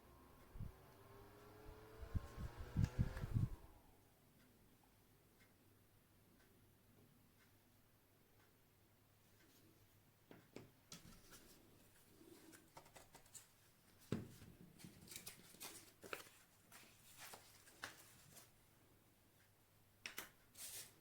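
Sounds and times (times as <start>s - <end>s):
faint clicks and rustles: 9.2s - 18.7s.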